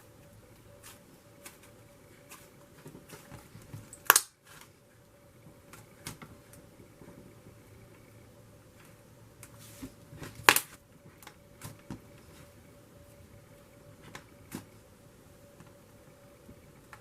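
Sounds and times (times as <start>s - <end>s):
sticky clicks and pops: 4.0s - 4.3s.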